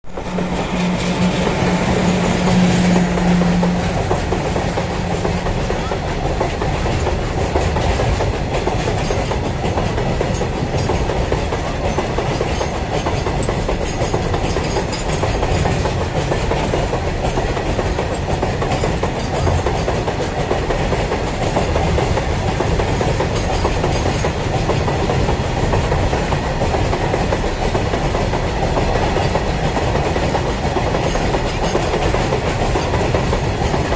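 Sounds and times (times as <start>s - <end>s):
freight train wagons rolling on rails: 0.0s - 33.9s.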